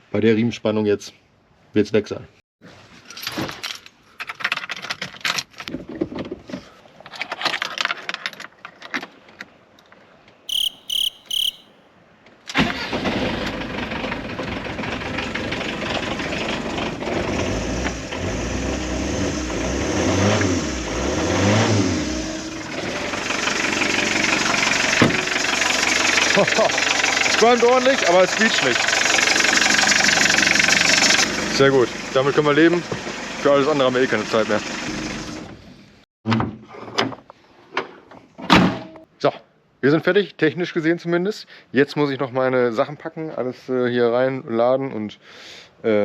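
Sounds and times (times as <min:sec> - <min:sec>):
short beeps: 0:10.5 - 0:11.7
motorhome engine starting and revving: 0:12.6 - 0:32.1.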